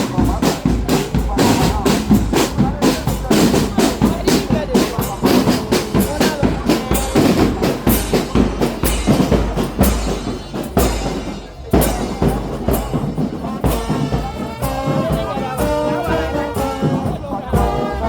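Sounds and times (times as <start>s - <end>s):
heavy drum strokes: 0.0s - 18.0s
brass melody of held notes: 13.3s - 18.0s.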